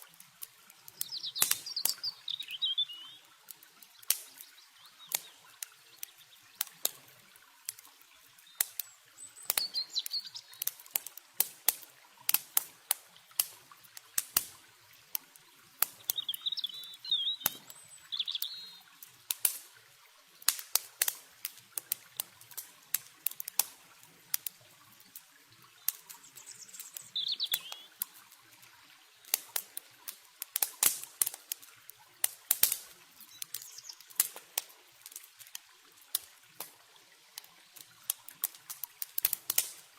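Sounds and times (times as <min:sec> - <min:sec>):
campfire crackling and popping: 0:00.0 - 0:39.9
running water hiss: 0:00.0 - 0:39.9
bird chirps: 0:01.0 - 0:03.2, 0:08.8 - 0:10.6, 0:16.0 - 0:18.9, 0:26.2 - 0:27.9, 0:33.3 - 0:34.0.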